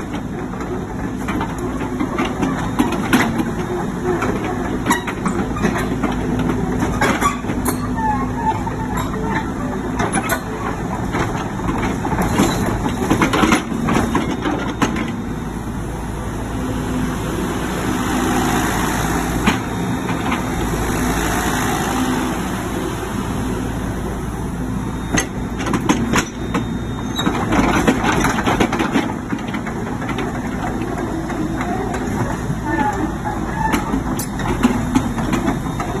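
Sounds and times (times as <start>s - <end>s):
machine knocks and clanks: 0.0s - 15.2s, 25.1s - 36.0s
excavator diesel engine running: 0.0s - 36.0s.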